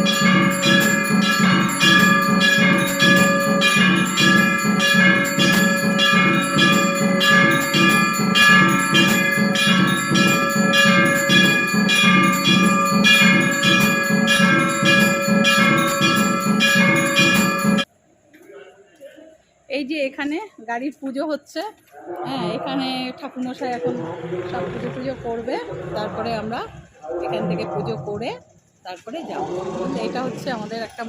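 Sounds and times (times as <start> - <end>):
bells ringing: 0.0 - 17.9.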